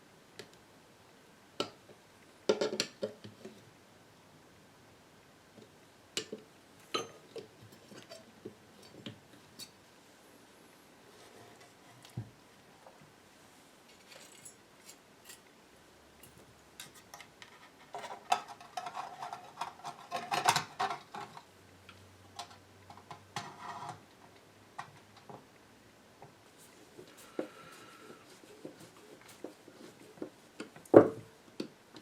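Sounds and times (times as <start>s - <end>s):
metal tools clinking on a workbench: 13.9s - 15.5s.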